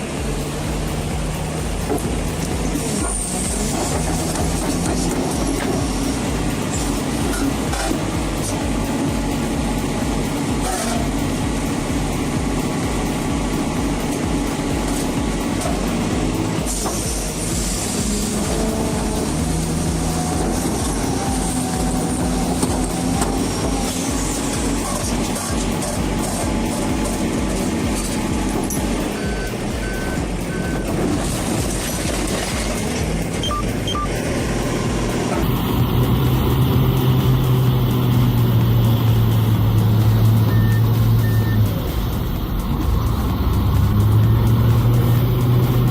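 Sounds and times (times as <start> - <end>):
diesel engine rumble: 0.0 - 45.9
backup alarm beeps: 29.2 - 31.0, 33.4 - 34.2, 40.5 - 41.7.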